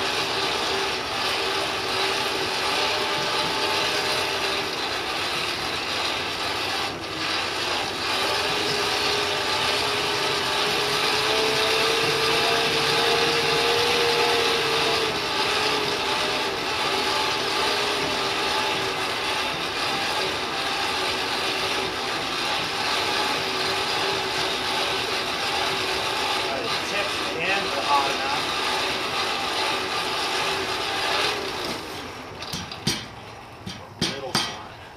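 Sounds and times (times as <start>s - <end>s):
forge blower whining: 0.0s - 34.9s.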